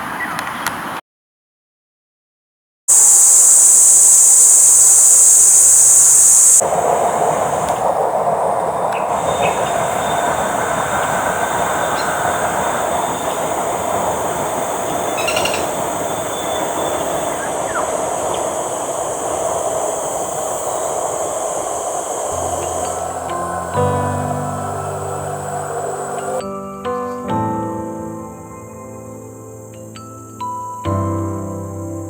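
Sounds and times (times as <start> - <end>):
faint steady whine: 2.9 - 26.4
loud high-pitched hiss: 2.9 - 26.4
train running noise: 2.9 - 26.4.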